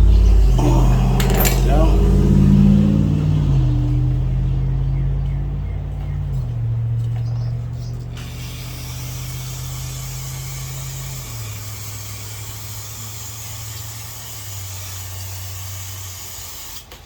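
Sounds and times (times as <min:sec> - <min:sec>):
motor humming: 0:00.0 - 0:14.8
steady hiss: 0:09.2 - 0:17.0.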